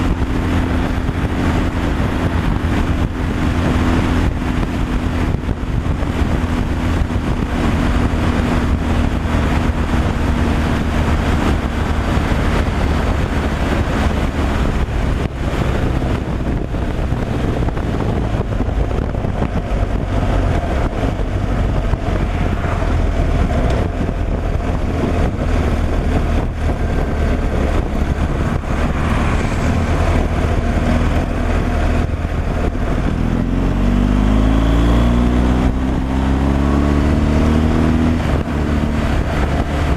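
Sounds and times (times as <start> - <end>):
diesel truck engine droning: 0.0 - 39.9
road noise: 0.0 - 39.9.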